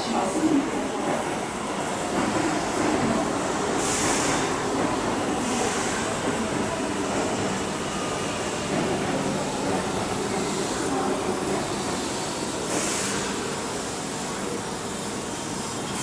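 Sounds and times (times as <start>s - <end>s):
electric train rumbling: 0.0s - 16.0s.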